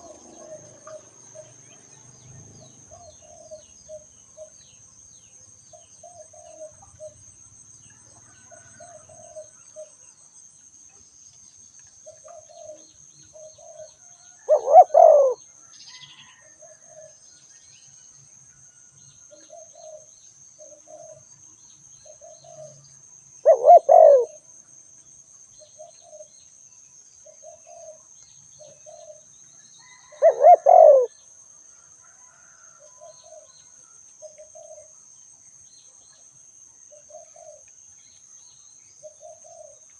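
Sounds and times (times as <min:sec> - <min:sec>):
dove cooing: 0:00.0 - 0:01.6, 0:02.6 - 0:04.6, 0:06.0 - 0:07.2, 0:08.6 - 0:10.0, 0:12.0 - 0:15.4, 0:19.3 - 0:21.2, 0:22.0 - 0:22.8, 0:23.4 - 0:24.4, 0:27.2 - 0:28.0, 0:28.6 - 0:29.2, 0:29.8 - 0:31.1, 0:34.2 - 0:34.9, 0:36.9 - 0:37.6, 0:39.0 - 0:39.8.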